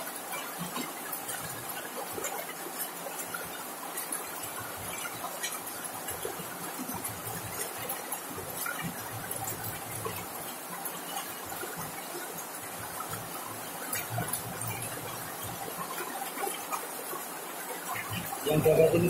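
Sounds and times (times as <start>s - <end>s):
rain on a metal roof: 0.0s - 19.0s.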